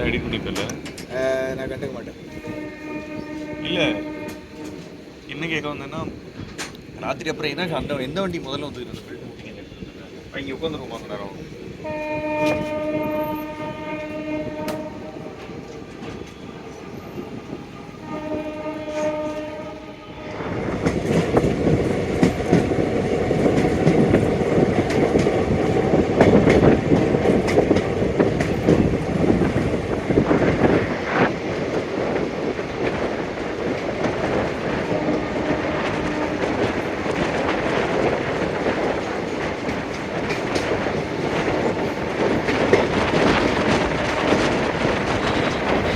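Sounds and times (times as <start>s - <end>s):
train wheels clattering on rail joints: 0.0s - 10.0s, 11.8s - 45.9s
moving train hum: 0.0s - 45.9s
train horn blasts: 2.2s - 5.2s, 11.8s - 20.6s, 34.7s - 37.2s.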